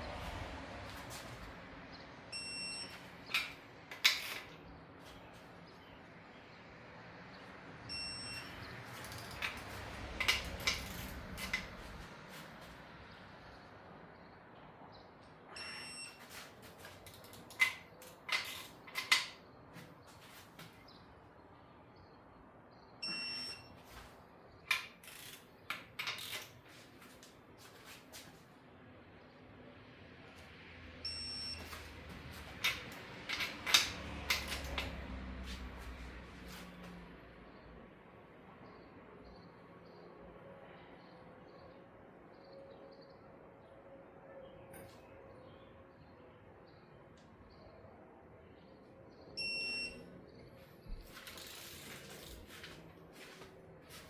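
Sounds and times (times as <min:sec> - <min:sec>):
short electronic beeps: 0:02.3 - 0:03.0, 0:07.9 - 0:08.6, 0:15.6 - 0:16.2, 0:23.0 - 0:23.8, 0:31.1 - 0:31.7, 0:49.4 - 0:50.0
wrench clinking on bolts: 0:03.2 - 0:04.6, 0:08.4 - 0:11.7, 0:17.1 - 0:19.4, 0:24.7 - 0:26.6, 0:32.6 - 0:35.1
metallic tool clicks and knocks: 0:03.3 - 0:04.6, 0:09.0 - 0:11.7, 0:17.1 - 0:19.4, 0:32.6 - 0:35.0.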